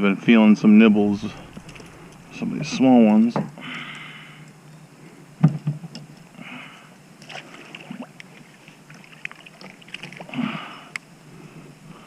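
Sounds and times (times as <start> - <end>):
water splashing around kayak: 7.2 - 10.6.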